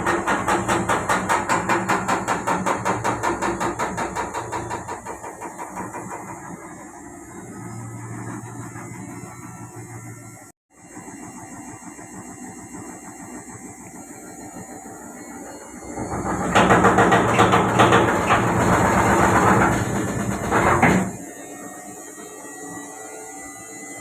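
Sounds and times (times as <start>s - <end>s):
washing machine knocking and rattling: 0.0s - 9.7s, 15.7s - 21.3s
washing machine spinning: 0.0s - 24.0s.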